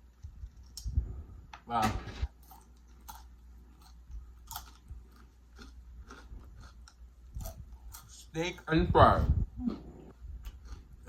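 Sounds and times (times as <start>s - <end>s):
person chewing food: 2.3s - 8.3s, 9.6s - 11.0s.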